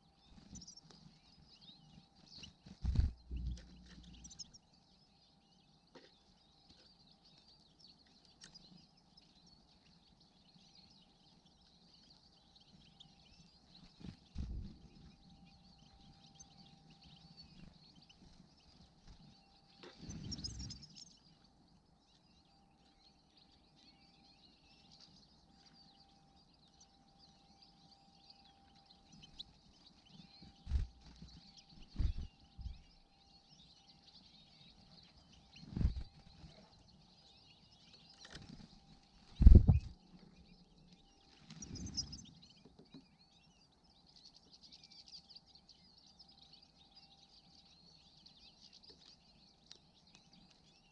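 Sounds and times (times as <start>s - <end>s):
songbirds twittering: 0.0s - 50.9s
dull low thumps: 2.8s - 4.2s.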